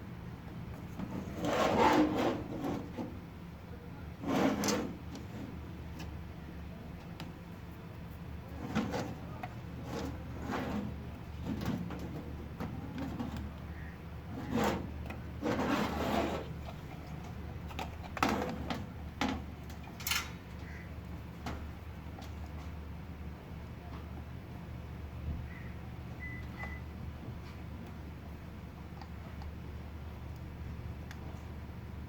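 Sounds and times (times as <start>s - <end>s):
small hand tools scraping and knocking: 8.6s - 20.3s.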